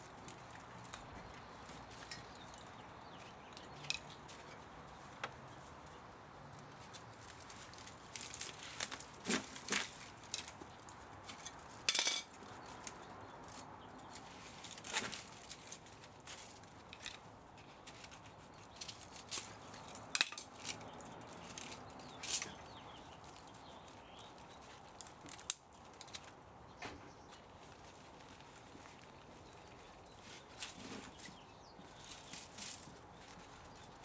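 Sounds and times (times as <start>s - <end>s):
metal parts and tools clinking: 11.3s - 12.4s.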